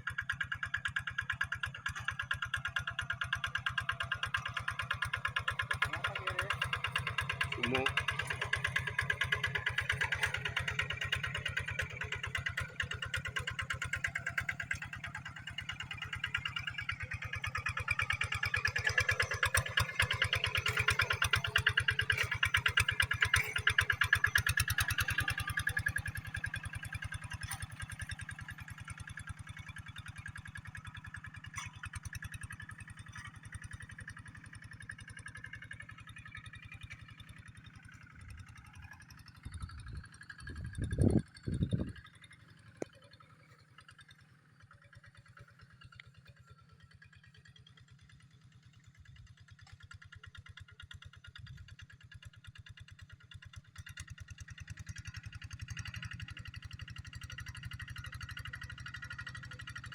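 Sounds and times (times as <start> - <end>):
diesel engine running: 0.0 - 47.6.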